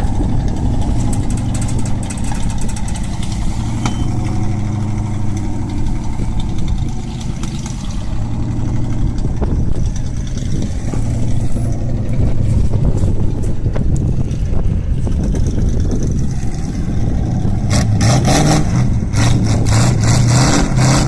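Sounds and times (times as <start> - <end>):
engine running at low pitch: 0.0 - 21.0.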